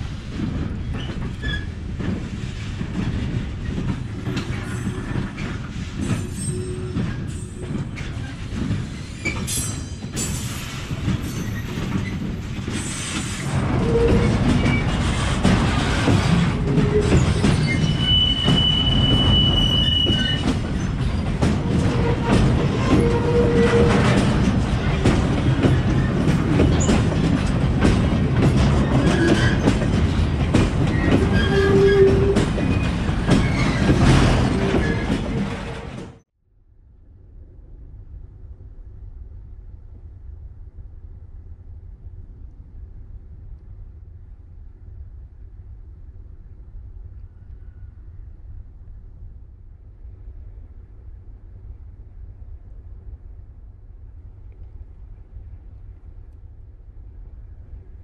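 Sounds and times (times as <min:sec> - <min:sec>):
freight wagons rumbling on rails: 0:00.0 - 0:36.3
wheel squeals: 0:15.9 - 0:24.3, 0:30.9 - 0:36.1.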